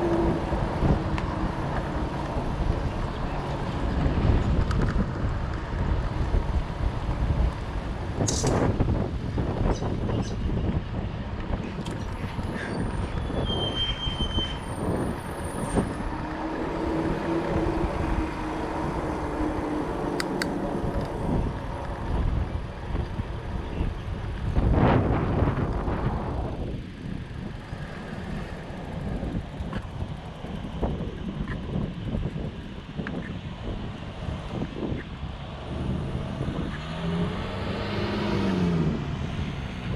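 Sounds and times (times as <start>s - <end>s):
wind buffeting microphone: 0.0s - 39.9s
bike tyres rolling: 10.5s - 34.0s.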